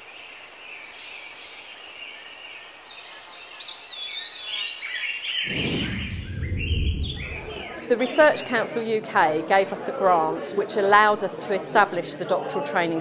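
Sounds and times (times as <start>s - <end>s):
low rumble: 5.5s - 7.9s.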